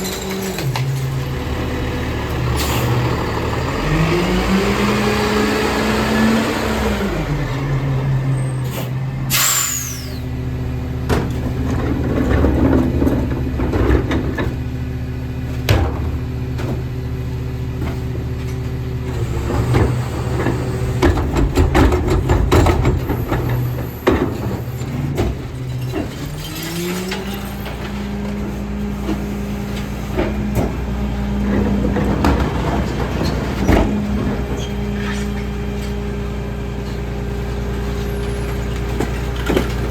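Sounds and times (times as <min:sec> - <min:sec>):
garbage truck diesel engine: 0:00.0 - 0:39.9
air brake hiss: 0:08.6 - 0:10.3
recyclables clattering into hopper: 0:19.5 - 0:34.6.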